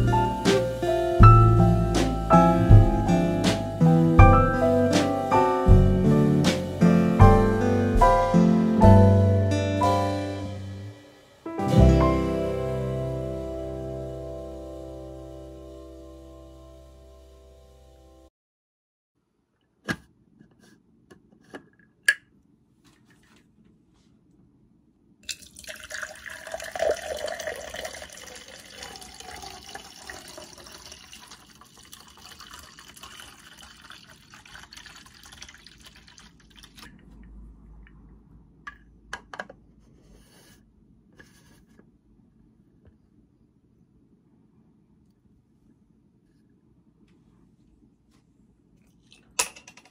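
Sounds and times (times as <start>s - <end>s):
water pouring into plastic tumbler: 25.3s - 37.0s.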